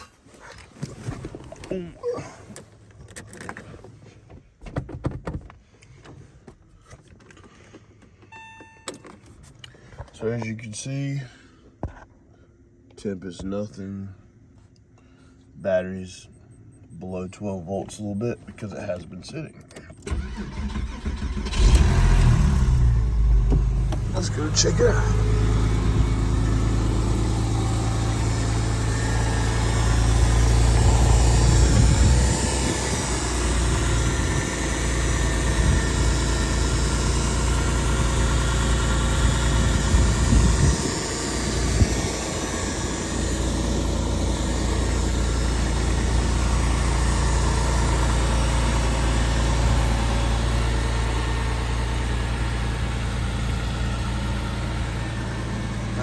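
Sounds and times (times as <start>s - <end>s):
car engine idling: 19.7s - 56.0s.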